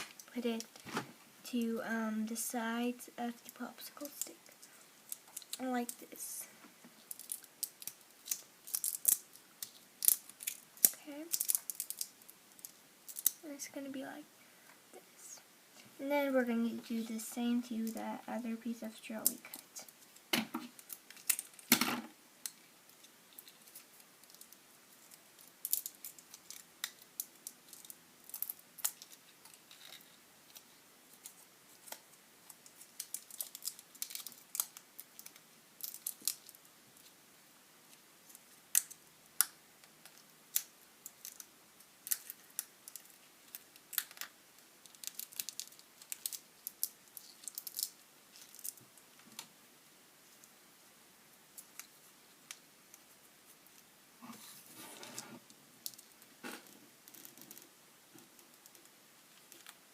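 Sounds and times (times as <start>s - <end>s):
plastic straw pieces clicking: 7.1s - 13.4s, 20.7s - 36.6s, 37.9s - 48.8s.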